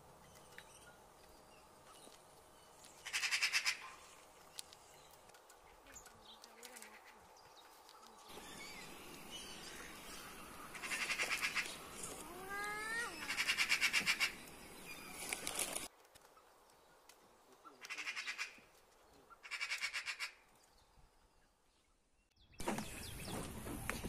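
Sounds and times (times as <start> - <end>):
birds chattering: 0.3 - 20.2
steady background hiss: 6.0 - 15.9
nasal bird call: 10.7 - 15.4.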